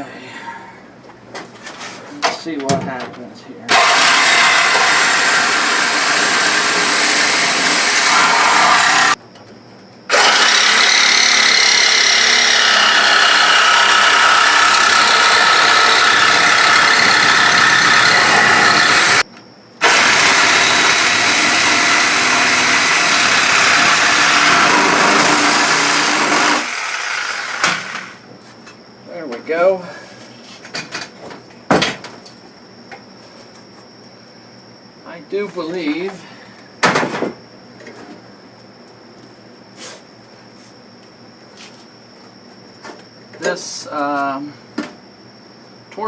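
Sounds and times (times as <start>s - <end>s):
power tool cutting steel: 3.7s - 9.2s, 10.1s - 19.2s, 19.8s - 28.2s.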